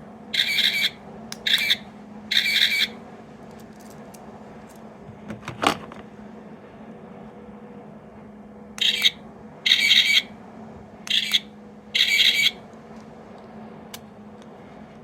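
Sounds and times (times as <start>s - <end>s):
toy click: 0.4s - 2.9s, 8.8s - 10.1s, 11.1s - 12.5s.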